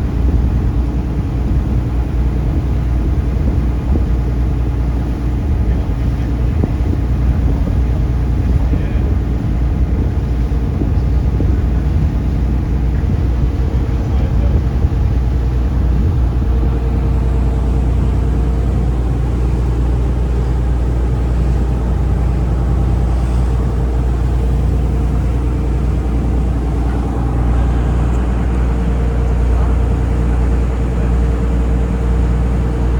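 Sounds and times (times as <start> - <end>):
boat engine droning: 0.0 - 32.9.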